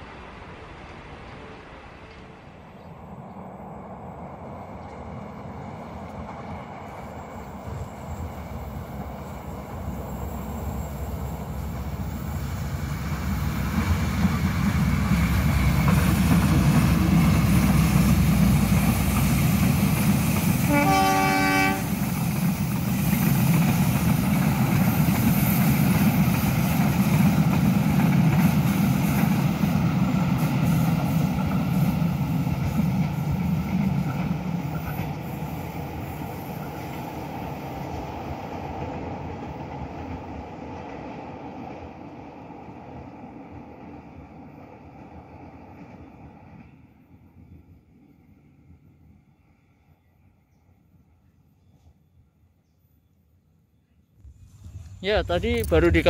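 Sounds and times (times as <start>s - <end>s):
train wheels on rails: 0.0s - 48.9s, 54.2s - 56.0s
diesel locomotive engine: 0.0s - 50.2s, 54.2s - 56.0s
locomotive horn blast: 20.6s - 22.0s.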